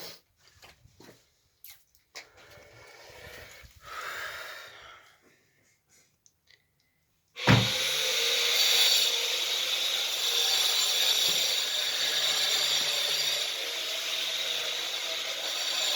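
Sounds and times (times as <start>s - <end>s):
power tool grinding: 7.4s - 15.9s.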